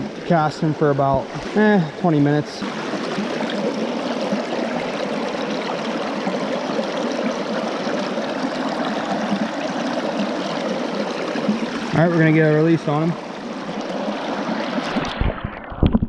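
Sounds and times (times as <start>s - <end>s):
stream water rushing and babbling: 0.0s - 15.9s.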